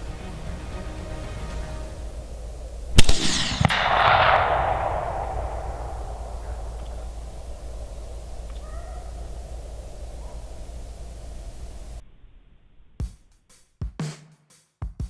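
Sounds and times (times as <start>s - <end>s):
rolling echo: 0.0s - 12.4s
rifle shot cracks: 1.8s - 12.0s.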